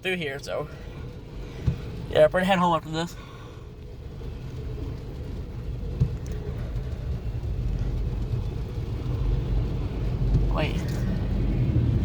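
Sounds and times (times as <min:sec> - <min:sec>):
freight train rumbling past: 0:04.0 - 0:12.0.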